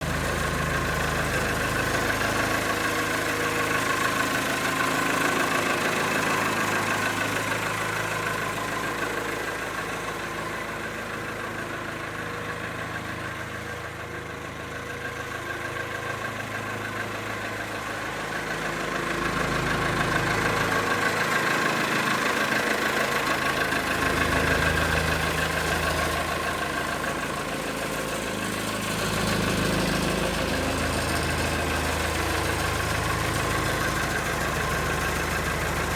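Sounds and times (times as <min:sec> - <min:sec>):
diesel engine idling: 0:00.0 - 0:35.9.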